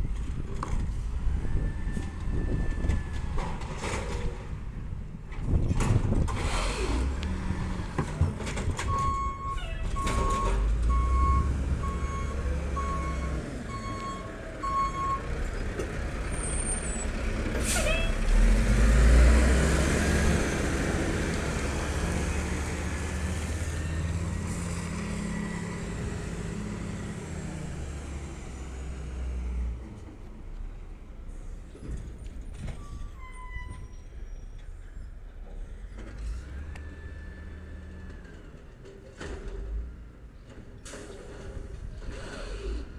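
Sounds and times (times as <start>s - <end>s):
garbage truck diesel engine: 5.7s - 42.9s
air brake hiss: 17.6s - 18.1s.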